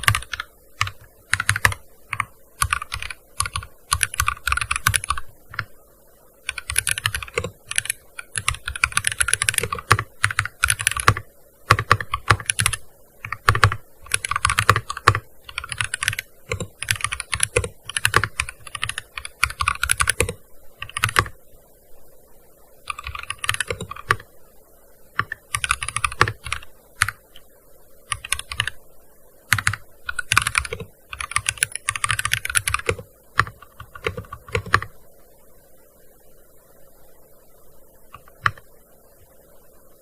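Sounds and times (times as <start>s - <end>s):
fast keyboard typing: 0.0s - 5.7s, 6.5s - 21.4s, 22.9s - 24.2s, 25.2s - 27.2s, 28.1s - 28.8s, 29.5s - 34.9s, 38.2s - 38.6s.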